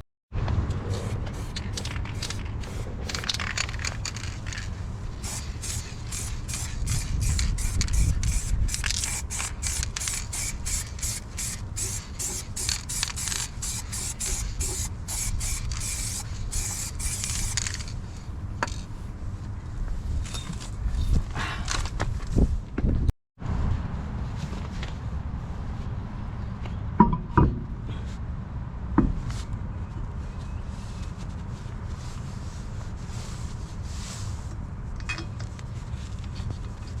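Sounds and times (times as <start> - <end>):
steady low rumble: 0.4 - 20.2
short hissing strokes on metal: 5.2 - 17.9.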